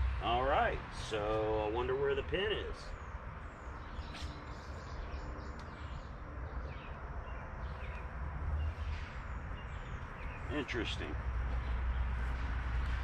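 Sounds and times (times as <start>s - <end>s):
bird chirps: 2.8s - 12.3s.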